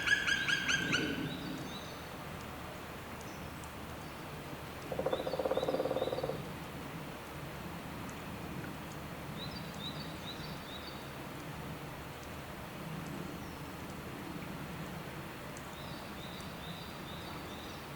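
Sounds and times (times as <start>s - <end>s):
low outdoor noise: 0.0s - 17.9s
frog croaking: 4.9s - 6.4s.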